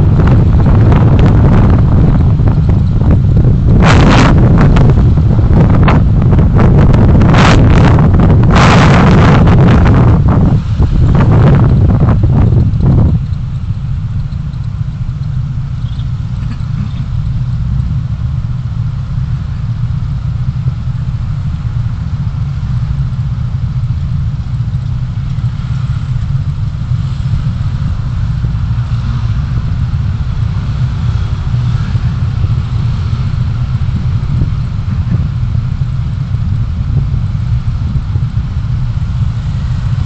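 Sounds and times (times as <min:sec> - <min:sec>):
vehicle road and engine noise: 0:00.0 - 0:40.0.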